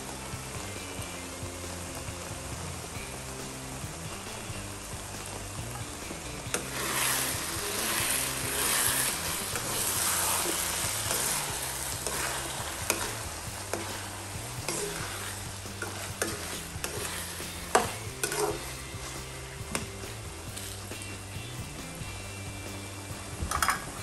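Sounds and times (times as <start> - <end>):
food sizzling in frying pan: 0.0 - 24.0
metal utensil scraping pan: 6.5 - 21.0, 23.5 - 24.0
utensil knocking on pan: 14.6 - 18.6.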